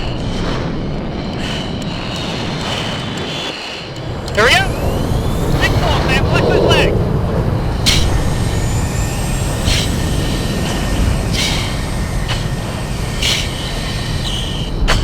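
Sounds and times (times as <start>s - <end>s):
jet cockpit low roar: 0.0s - 15.0s
short sharp breaths: 9.6s - 15.0s.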